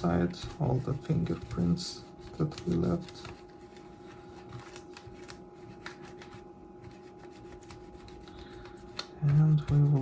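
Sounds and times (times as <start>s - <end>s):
faint rubbing and scraping: 0.0s - 4.8s
faint steady hum: 0.0s - 10.0s.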